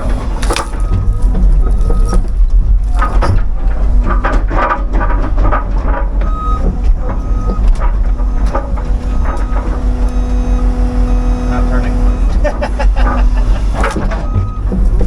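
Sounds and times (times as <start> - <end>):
wood cracking and snapping: 0.0 - 10.2
excavator diesel engine: 0.0 - 15.0.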